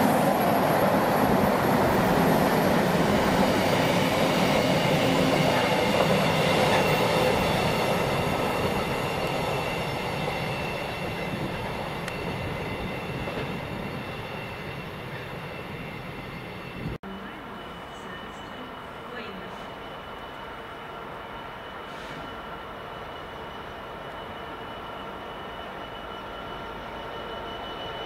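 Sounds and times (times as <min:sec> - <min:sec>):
freight train wheel rumble: 0:00.0 - 0:19.8.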